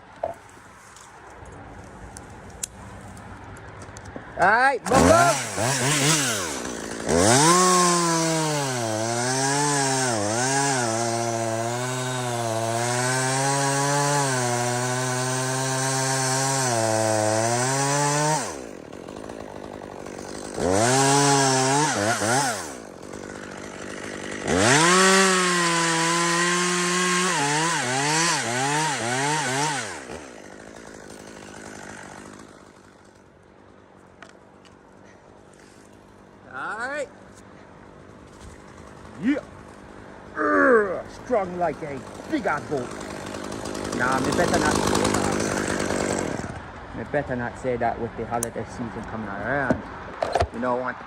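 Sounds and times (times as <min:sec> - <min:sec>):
chainsaw cutting wood: 0:04.8 - 0:33.3, 0:38.2 - 0:39.8, 0:41.1 - 0:46.8.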